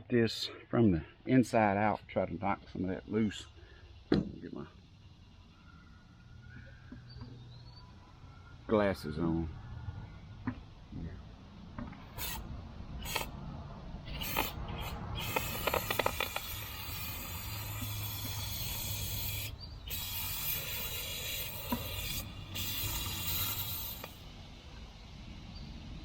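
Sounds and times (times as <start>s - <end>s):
spray hissing: 12.0s - 12.4s, 13.0s - 13.3s, 14.1s - 26.0s
sharp clicks: 13.0s - 13.4s, 14.1s - 17.0s.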